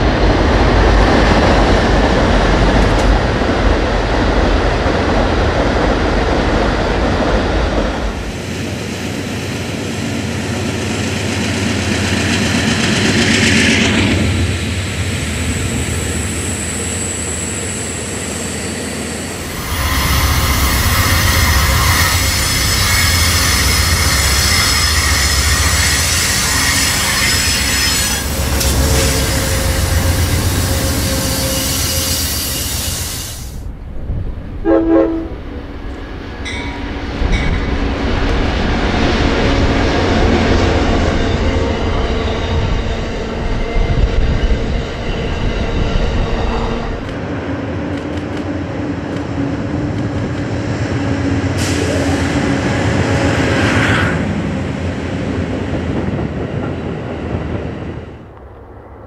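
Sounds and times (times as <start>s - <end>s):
wheel-on-rail rumble and clatter: 0.0s - 8.4s, 35.7s - 58.7s
diesel locomotives running: 0.0s - 59.0s
train horn blast: 19.4s - 32.8s, 34.6s - 35.7s
high-pitched wheel squeal: 19.4s - 33.5s.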